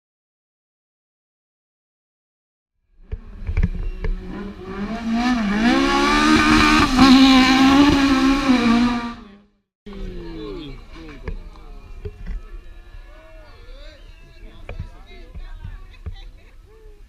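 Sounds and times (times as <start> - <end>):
rally car engine revving: 3.0 - 9.4.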